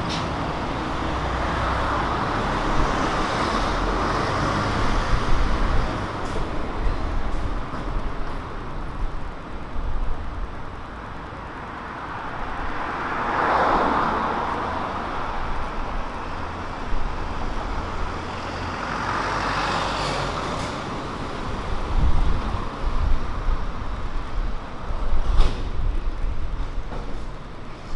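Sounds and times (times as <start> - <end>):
steady low traffic rumble: 0.0 - 27.9
car passing: 12.0 - 25.4.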